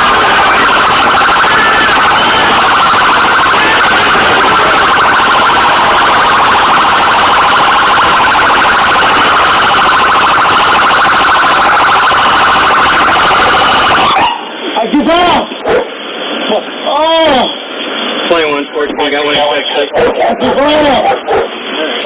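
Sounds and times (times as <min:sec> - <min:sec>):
police siren warbling: 0:00.0 - 0:14.8.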